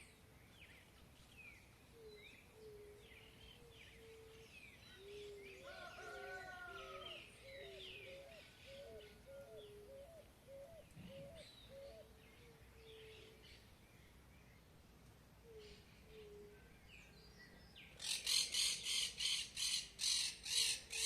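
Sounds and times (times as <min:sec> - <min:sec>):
birds singing and chirping: 0:00.5 - 0:13.8.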